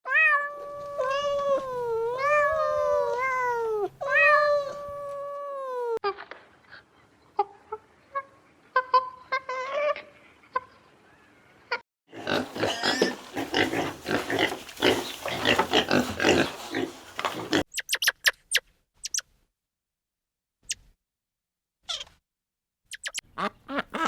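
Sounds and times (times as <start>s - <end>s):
cat meowing: 0.1s - 6.0s
cat chirps and clicks: 17.7s - 19.3s, 22.9s - 23.3s.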